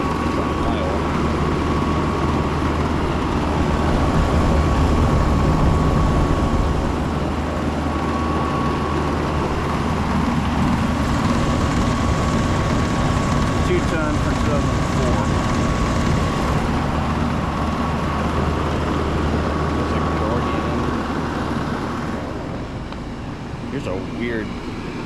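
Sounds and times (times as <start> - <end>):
air conditioner compressor hum: 0.0 - 25.0
thin high whine: 8.0 - 18.4.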